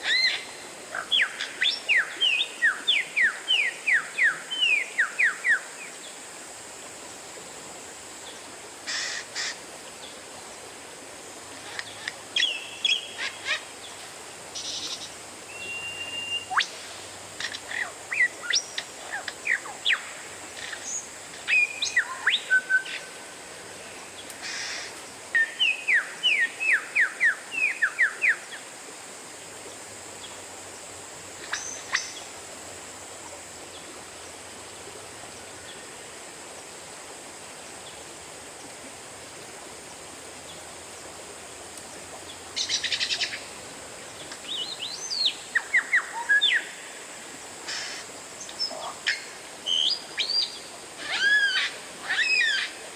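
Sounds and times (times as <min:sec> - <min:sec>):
faint steady hiss: 0:00.0 - 0:52.9
bird whistling song: 0:15.5 - 0:16.7.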